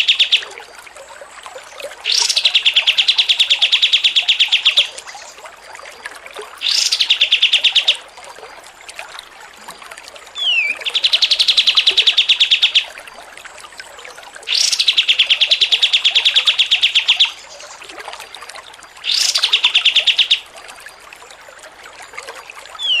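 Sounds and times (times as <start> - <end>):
songbird chattering trills: 0.0 - 0.5, 10.4 - 12.9, 14.5 - 17.8, 19.1 - 20.4, 22.8 - 23.0.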